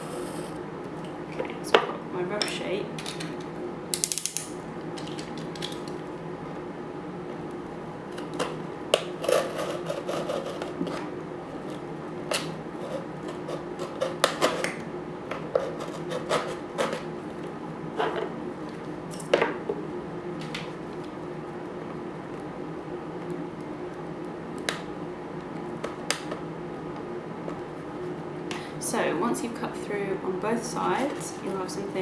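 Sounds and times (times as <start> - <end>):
blade cutting cardboard: 8.1 - 14.8, 15.6 - 17.1.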